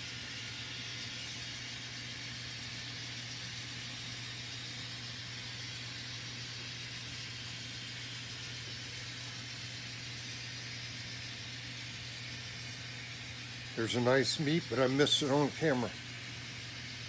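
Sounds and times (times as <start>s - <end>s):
model trains humming: 0.0s - 17.0s.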